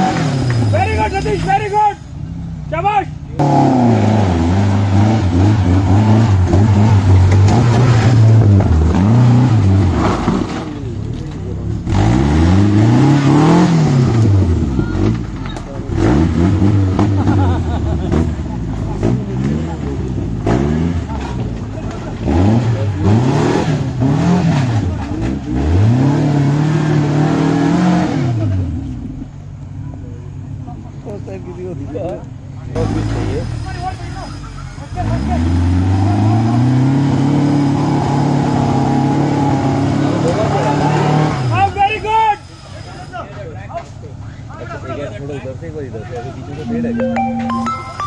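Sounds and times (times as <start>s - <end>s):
vehicle engine revving: 0.0s - 1.6s, 3.4s - 29.3s, 32.7s - 41.6s
engine revving loudly: 3.4s - 10.3s, 11.8s - 15.2s, 22.2s - 24.8s.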